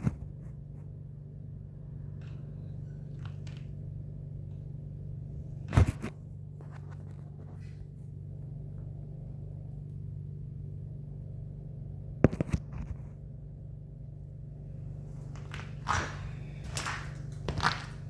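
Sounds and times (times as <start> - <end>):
low droning hum: 0.0 - 18.0
shuffling and rustling: 5.4 - 8.1.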